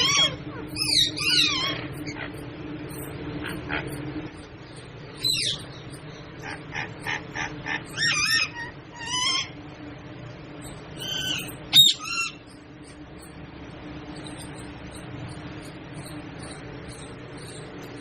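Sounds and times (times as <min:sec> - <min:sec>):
parrot whistling and calling: 0:00.0 - 0:09.6, 0:10.6 - 0:12.6.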